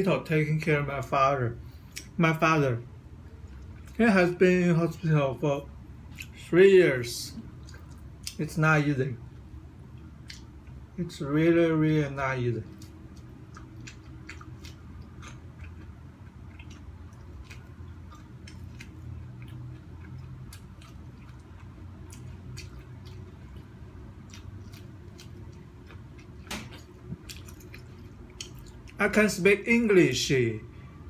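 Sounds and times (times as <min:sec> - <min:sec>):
steady low hum: 0:00.0 - 0:31.0
person chewing corn on the cob: 0:06.1 - 0:06.4, 0:07.4 - 0:08.4, 0:09.9 - 0:10.8, 0:12.6 - 0:29.0.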